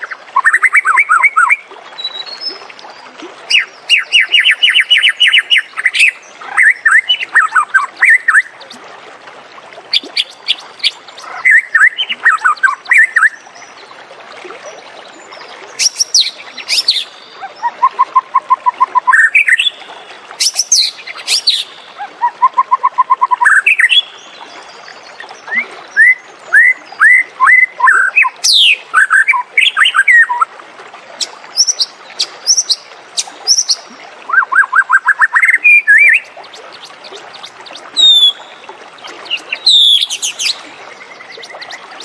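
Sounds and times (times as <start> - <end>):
bird singing whistled song: 20.4 - 24.2, 25.5 - 30.5, 33.5 - 38.6, 39.2 - 42.0.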